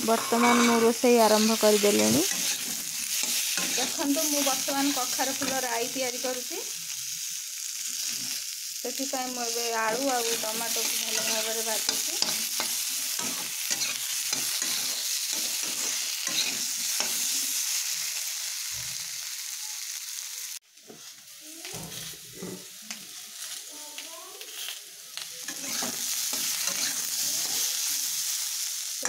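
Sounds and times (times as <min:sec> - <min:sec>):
metal spatula scraping a pan: 0:00.0 - 0:05.8, 0:09.9 - 0:17.5, 0:25.5 - 0:27.7
vegetables sizzling in oil: 0:00.0 - 0:29.0.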